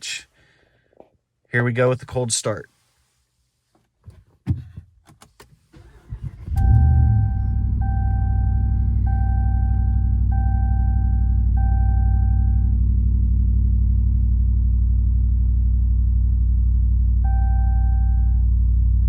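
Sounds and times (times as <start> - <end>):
engine starting and idling: 5.3 - 10.7
dashboard warning chime: 6.6 - 12.7, 17.2 - 18.4.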